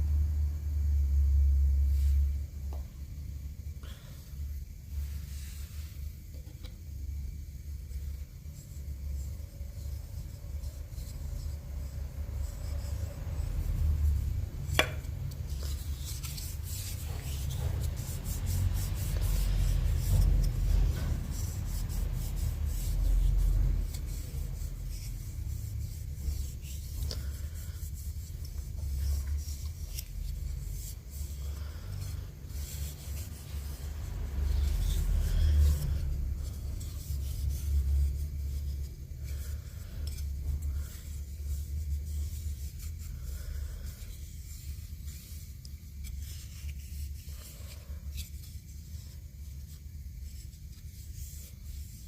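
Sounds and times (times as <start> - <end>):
hand tool scraping wood: 12.5 - 25.3.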